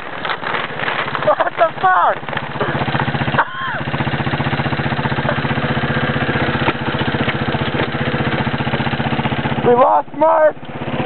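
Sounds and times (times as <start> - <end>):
boat engine throbbing: 0.0 - 11.0.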